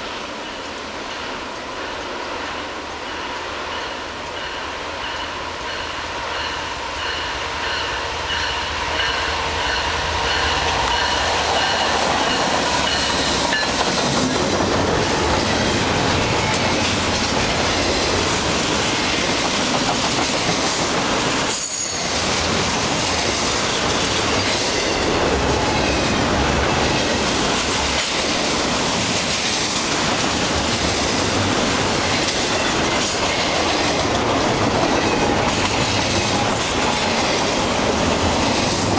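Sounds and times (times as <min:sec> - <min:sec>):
freight train rumbling past: 0:00.0 - 0:38.9
wheels clattering on rails: 0:10.3 - 0:26.2
high wheel squeal: 0:21.5 - 0:22.3.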